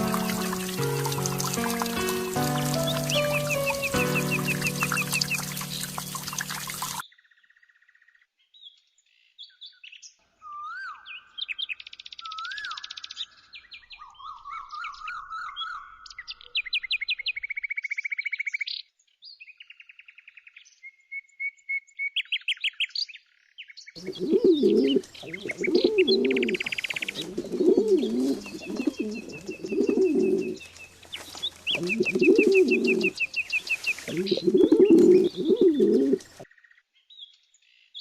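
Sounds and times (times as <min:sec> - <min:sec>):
dove cooing: 0:00.0 - 0:07.0, 0:24.0 - 0:36.4
music: 0:00.0 - 0:07.0, 0:24.2 - 0:25.0, 0:27.6 - 0:30.5, 0:31.8 - 0:33.1
songbird calls: 0:00.0 - 0:07.0, 0:24.0 - 0:36.4.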